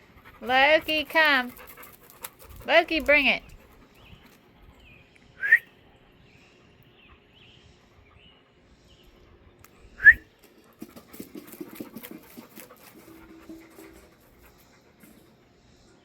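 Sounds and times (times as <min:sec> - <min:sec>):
scuffling and clattering: 0:10.4 - 0:15.4.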